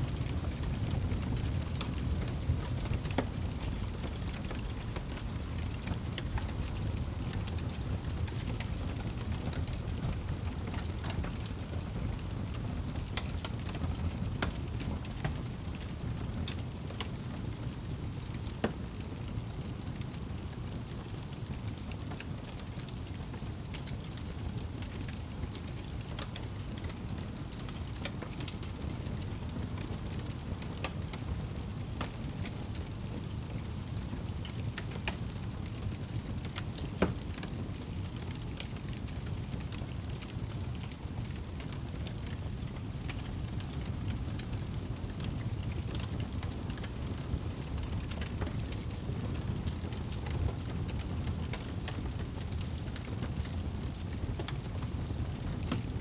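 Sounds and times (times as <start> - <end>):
fire burning with crackles: 0.0 - 56.0.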